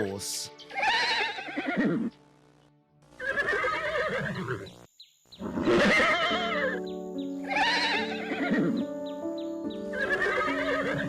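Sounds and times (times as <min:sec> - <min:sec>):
background music: 0:00.0 - 0:04.8, 0:05.5 - 0:11.0
horse whinnying: 0:00.7 - 0:02.1, 0:03.2 - 0:04.7, 0:05.4 - 0:06.8, 0:07.5 - 0:08.8, 0:09.9 - 0:11.0.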